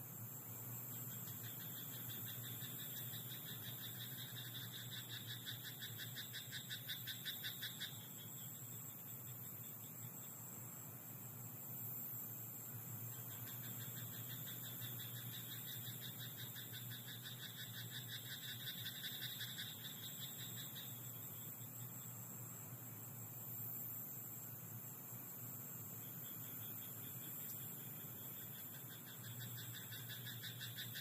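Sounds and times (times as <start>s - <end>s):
frog calling: 1.2s - 8.2s, 13.1s - 21.3s, 26.5s - 31.0s.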